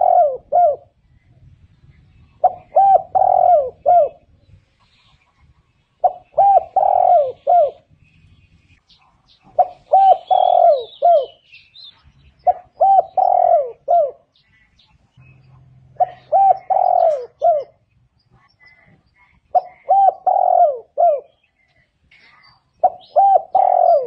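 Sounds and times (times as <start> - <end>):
dove cooing: 0.0 - 1.0, 2.4 - 4.3, 6.0 - 7.9, 9.5 - 11.5, 12.4 - 14.3, 15.9 - 17.8, 19.5 - 21.5, 22.8 - 24.0
faint high bird chirps: 1.1 - 24.0.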